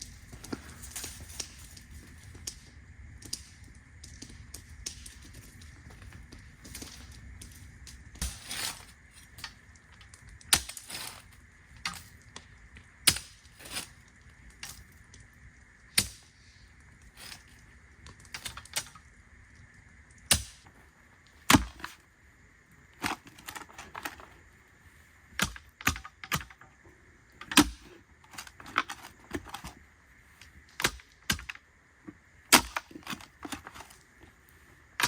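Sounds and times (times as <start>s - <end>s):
post hole digger striking clay: 10.5s - 11.2s, 20.3s - 20.7s, 21.5s - 22.0s, 23.0s - 24.3s, 25.4s - 26.6s, 27.4s - 29.8s, 30.7s - 31.6s, 32.5s - 34.0s
knocks of digger blades: 21.5s - 22.0s, 25.4s - 26.6s, 27.4s - 29.8s, 32.5s - 34.0s.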